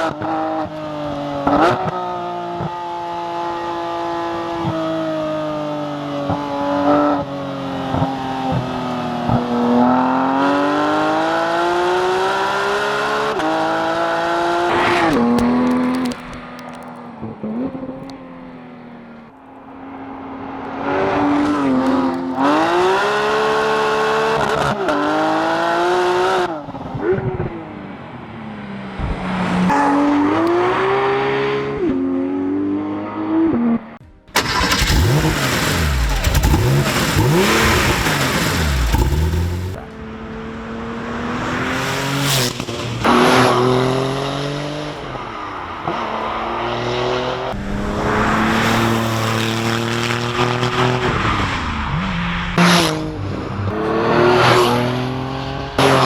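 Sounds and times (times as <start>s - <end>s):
sports car engines accelerating: 0.0s - 56.0s.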